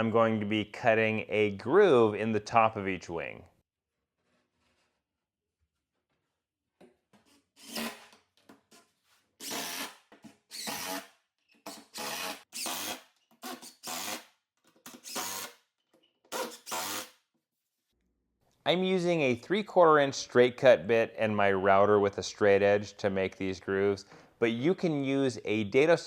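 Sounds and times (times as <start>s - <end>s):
power drill driving screws: 7.6s - 8.1s, 9.4s - 14.3s, 14.9s - 15.6s, 16.3s - 17.2s.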